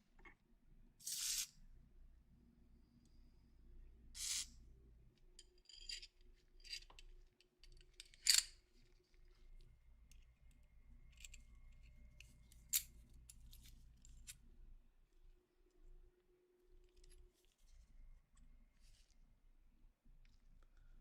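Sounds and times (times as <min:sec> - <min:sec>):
metal pistol parts clicking: 0:05.5 - 0:08.6, 0:11.1 - 0:14.4.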